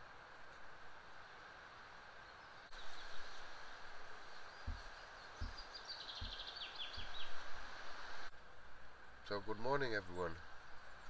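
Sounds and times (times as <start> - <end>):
woodland background hiss: 0.0 - 11.0
songbird singing: 2.0 - 8.3, 9.0 - 11.0
soft low thumps: 4.0 - 7.6.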